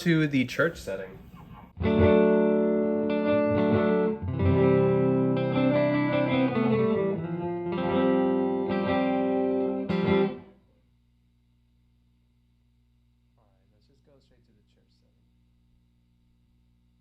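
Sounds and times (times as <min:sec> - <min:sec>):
electric guitar strumming chords: 0:01.8 - 0:10.6.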